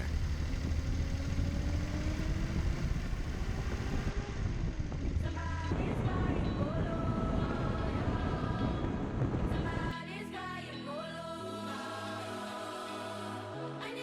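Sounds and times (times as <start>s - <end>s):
car engine rumbling: 0.0s - 7.2s.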